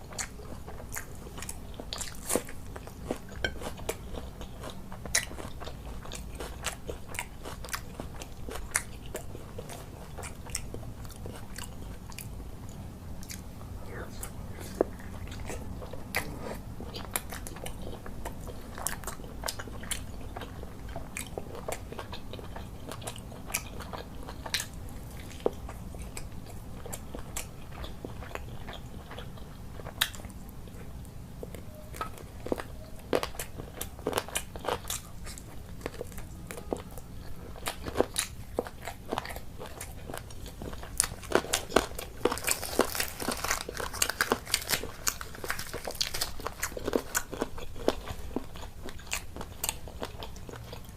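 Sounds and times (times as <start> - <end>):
person chewing food: 0.0 - 50.9
steady low hum: 0.0 - 50.9.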